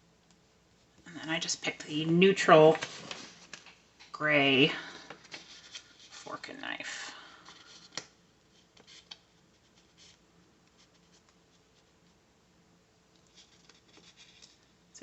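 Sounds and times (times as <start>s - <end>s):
soft paper rustle: 2.5s - 4.2s, 4.8s - 6.5s, 7.3s - 12.2s, 13.2s - 14.9s.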